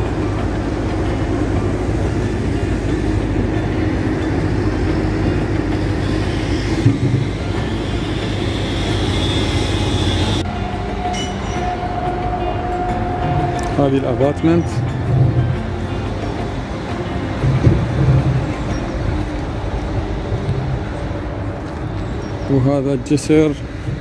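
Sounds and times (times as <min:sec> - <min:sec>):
faint high whine: 0:00.0 - 0:14.8
passing train rumble: 0:00.0 - 0:24.0
steady hum: 0:00.0 - 0:24.0.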